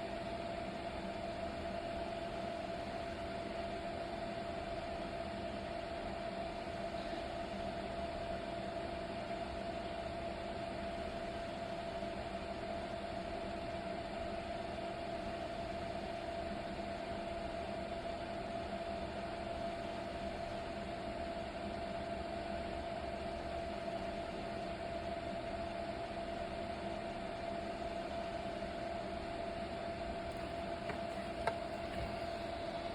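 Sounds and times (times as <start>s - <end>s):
steady hum: 0.0s - 5.6s, 30.3s - 32.9s.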